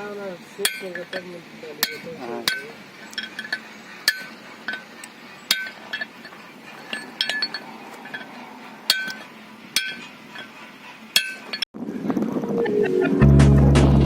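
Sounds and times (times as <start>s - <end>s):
metal tools clinking on metal: 0.6s - 10.6s.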